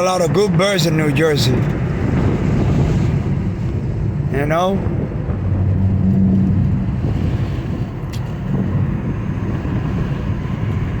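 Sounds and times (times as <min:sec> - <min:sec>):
car engine and road noise: 0:00.0 - 0:11.0
low hum: 0:01.8 - 0:09.5.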